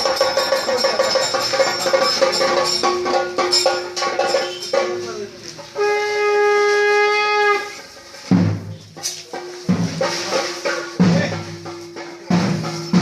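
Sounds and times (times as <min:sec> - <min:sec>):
cymbals clashing: 0:00.0 - 0:13.0
heavy drum strokes: 0:00.0 - 0:13.0
horn note: 0:05.8 - 0:07.8.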